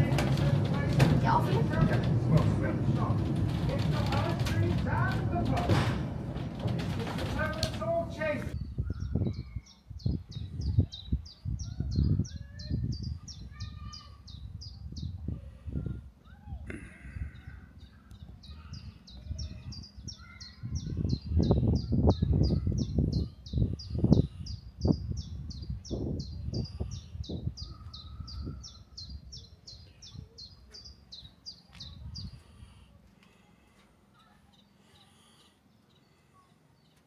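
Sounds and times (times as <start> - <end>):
low rumbling and knocks: 0.0 - 8.6.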